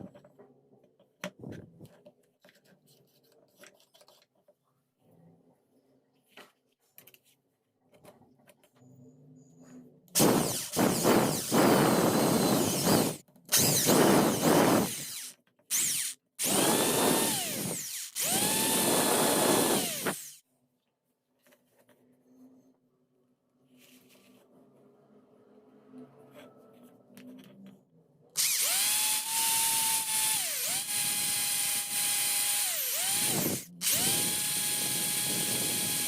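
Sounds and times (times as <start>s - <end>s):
electric drill whirring: 10.2s - 20.4s, 28.4s - 36.0s.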